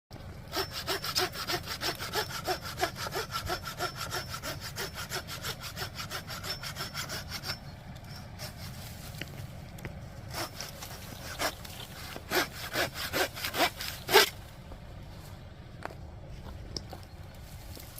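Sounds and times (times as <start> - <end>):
rhythmic rasping strokes: 0.5 - 8.8.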